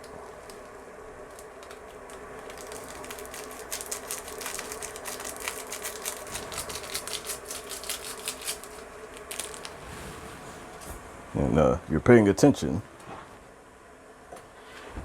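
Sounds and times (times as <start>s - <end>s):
foil packet crinkling: 0.0s - 9.8s.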